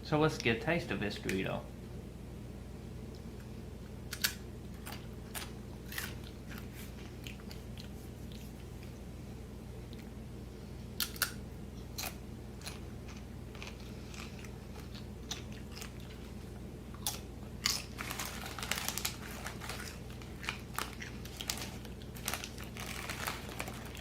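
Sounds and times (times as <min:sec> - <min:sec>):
steady low hum: 0:00.0 - 0:24.0
person crunching chips: 0:04.2 - 0:08.6, 0:11.0 - 0:24.0.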